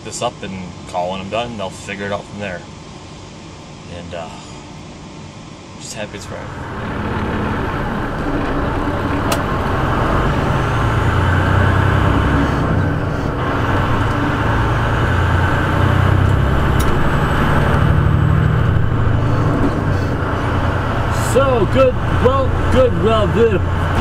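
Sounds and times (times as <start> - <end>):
truck diesel engine droning: 6.1 - 24.0.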